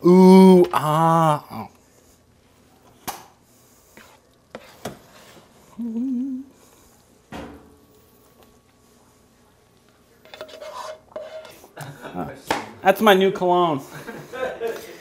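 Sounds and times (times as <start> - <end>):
person humming: 0.0 - 1.8, 5.7 - 6.7.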